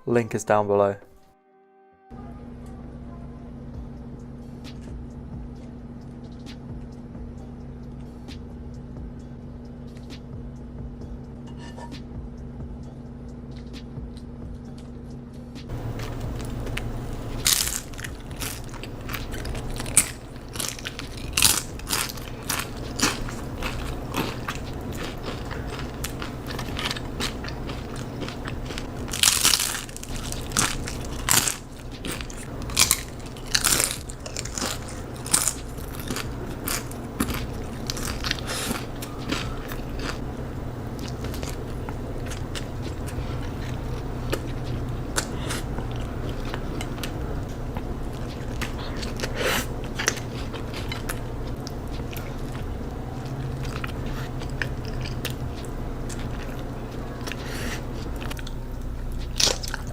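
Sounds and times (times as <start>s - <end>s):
steady low hum: 2.1s - 59.9s
person chewing crunchy food: 15.7s - 59.9s.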